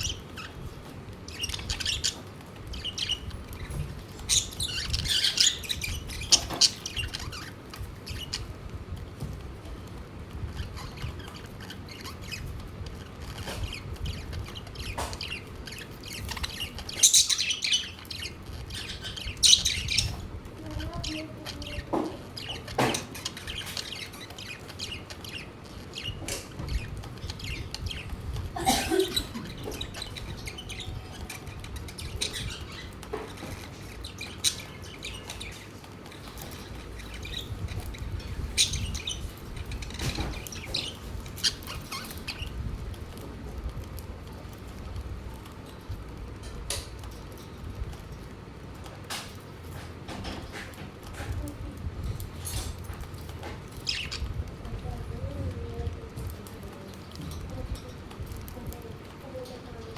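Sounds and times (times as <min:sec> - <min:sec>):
budgerigars chirping: 0:00.0 - 0:08.6, 0:09.2 - 0:43.3, 0:52.0 - 0:54.5.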